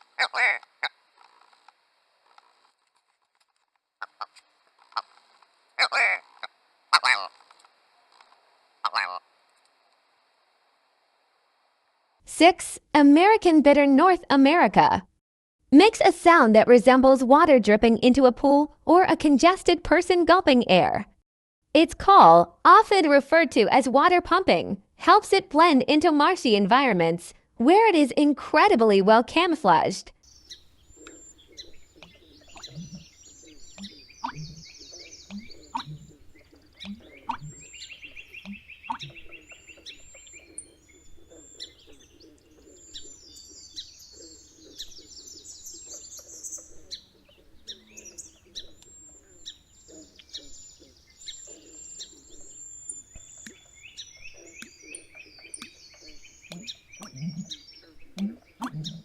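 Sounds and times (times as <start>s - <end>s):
birds chirping and trilling: 0.2s - 0.6s, 8.8s - 9.2s, 30.2s - 59.0s
low croaking: 30.3s - 43.8s, 50.0s - 59.0s.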